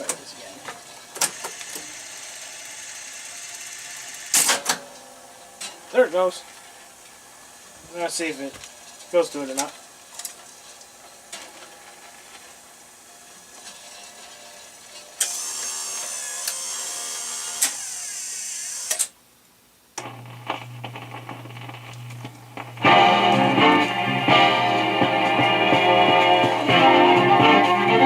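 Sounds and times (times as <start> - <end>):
jukebox mechanism whirring: 0.8 - 8.3, 9.0 - 19.2
steady low hum: 19.5 - 27.9.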